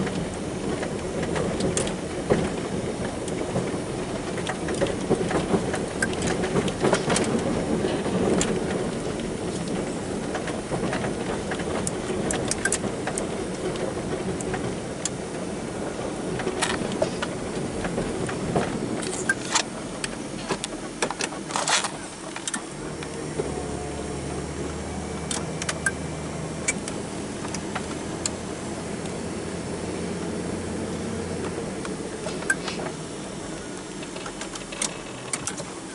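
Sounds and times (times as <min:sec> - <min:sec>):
engine running: 0:00.0 - 0:35.9
sharp clicks and knocks: 0:04.3 - 0:15.2, 0:34.0 - 0:35.7
steady low hum: 0:21.9 - 0:35.9.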